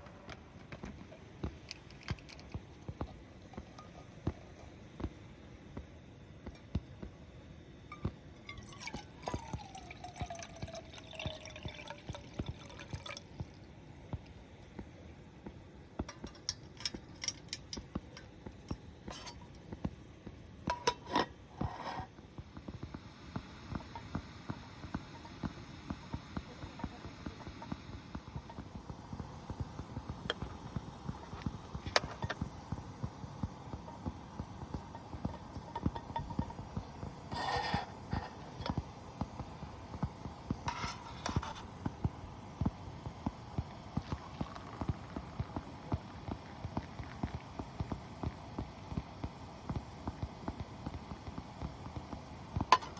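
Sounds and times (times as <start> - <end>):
small clicks and crackles: 0.3 - 4.7
liquid pouring and dripping: 7.9 - 14.4, 42.6 - 49.1.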